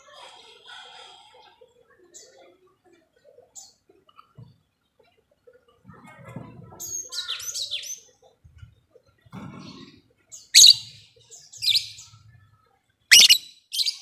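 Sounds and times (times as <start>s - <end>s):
bird chattering chirps: 10.5s - 11.0s, 13.1s - 14.0s
bird shrieks: 10.6s - 10.9s, 13.1s - 13.4s.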